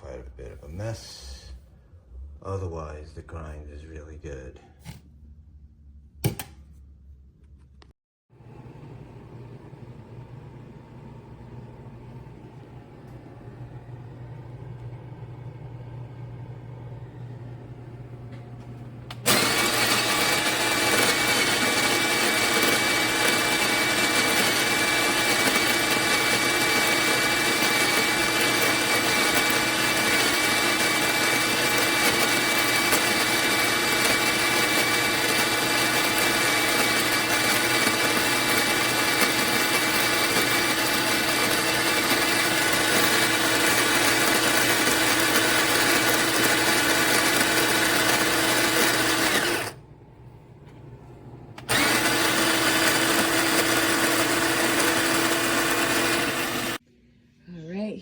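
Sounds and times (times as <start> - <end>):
electric coffee grinder running: 19.1 - 49.8, 51.6 - 56.8.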